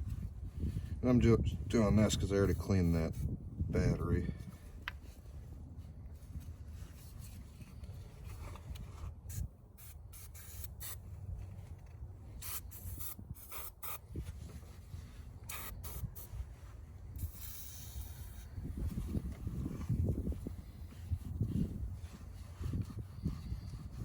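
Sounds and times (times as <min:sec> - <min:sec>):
aerosol spray can hissing: 0:15.5 - 0:16.3, 0:17.2 - 0:18.5.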